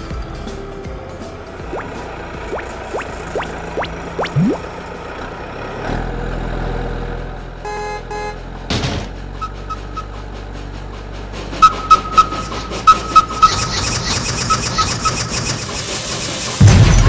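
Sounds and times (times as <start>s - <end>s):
low engine hum: 0.1s - 15.7s
cartoon rising swoop: 2.5s - 4.7s.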